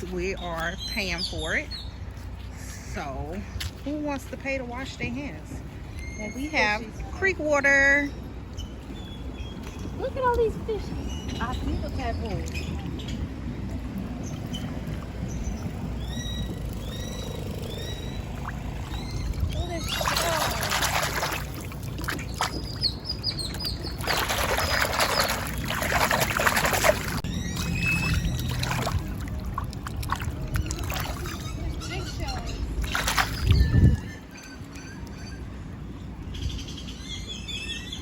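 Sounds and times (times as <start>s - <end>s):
birds chirping: 0.0s - 38.0s
water splashing around hands: 16.8s - 34.1s.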